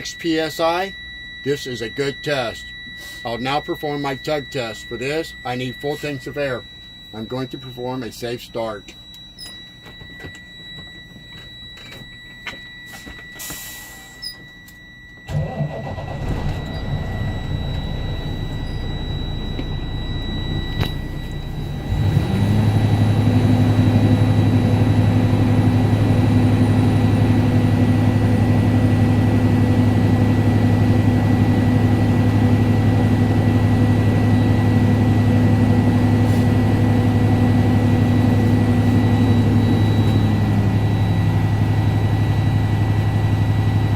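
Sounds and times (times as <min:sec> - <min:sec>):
high warning beep tone: 0:00.0 - 0:43.9
diesel engine starting and idling: 0:15.3 - 0:43.9.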